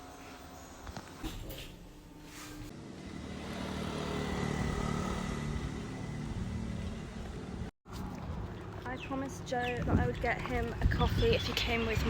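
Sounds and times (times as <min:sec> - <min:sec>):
vehicle road-noise hum: 0:00.0 - 0:09.1.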